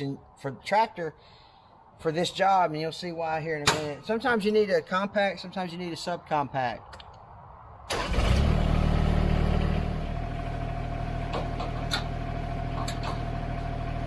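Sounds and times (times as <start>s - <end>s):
diesel tractor engine starting and idling: 7.9s - 14.0s.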